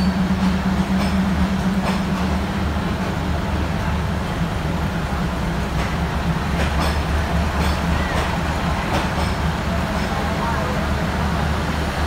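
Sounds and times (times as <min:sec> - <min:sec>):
diesel train rumble: 0:00.0 - 0:12.0
wheels clicking over rail joints: 0:05.7 - 0:10.3.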